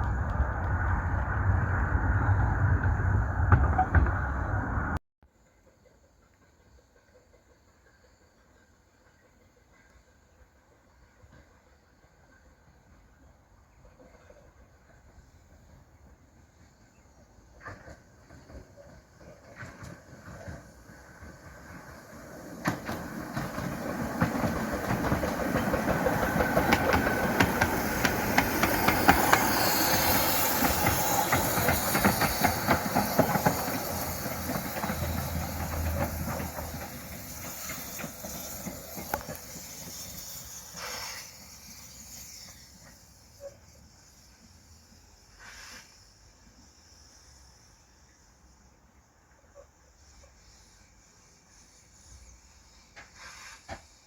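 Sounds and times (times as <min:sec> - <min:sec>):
wheels clattering on rails: 0:00.0 - 0:05.0, 0:17.6 - 0:43.5
steam hiss: 0:05.4 - 0:54.0.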